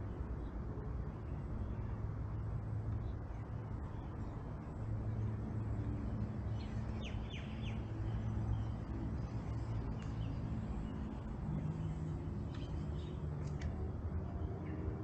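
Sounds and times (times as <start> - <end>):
steady low hum: 0.0 - 15.0
bird chirping: 6.5 - 13.6.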